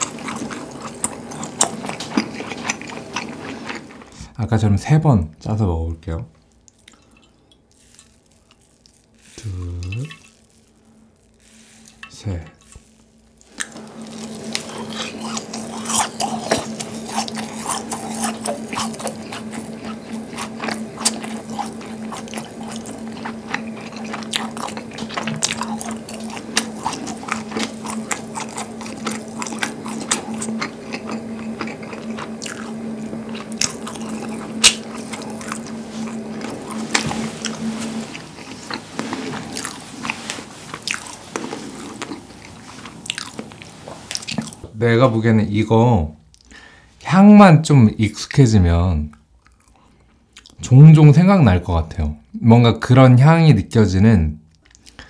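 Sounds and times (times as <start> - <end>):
wet chewing: 0.0 - 4.2, 6.5 - 44.6, 54.5 - 55.0
person speaking: 9.3 - 10.3
steady low tone: 9.3 - 40.9.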